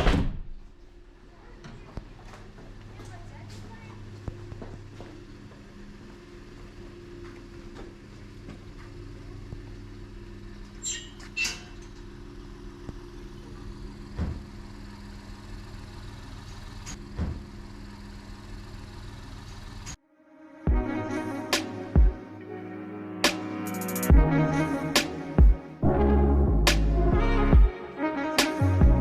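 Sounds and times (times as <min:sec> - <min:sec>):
vehicle humming: 0:01.4 - 0:20.0
short high squeaks: 0:10.8 - 0:11.9.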